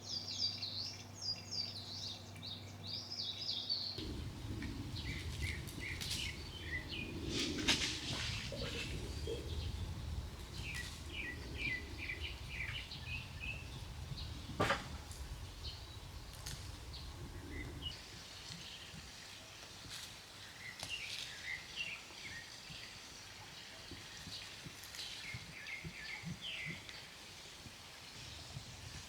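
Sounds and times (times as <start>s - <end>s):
small birds chirping: 0.4s - 18.0s
low steady rumble: 4.0s - 17.9s.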